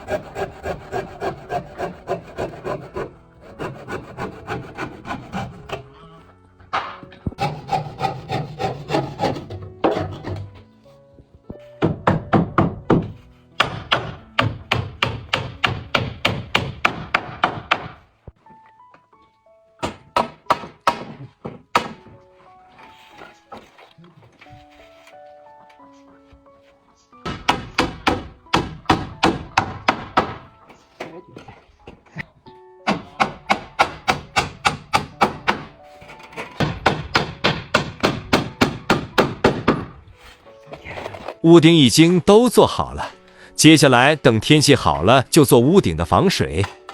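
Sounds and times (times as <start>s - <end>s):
hammer on wooden boards: 11.8s - 18.0s, 19.8s - 22.2s, 27.2s - 32.0s, 32.8s - 40.0s.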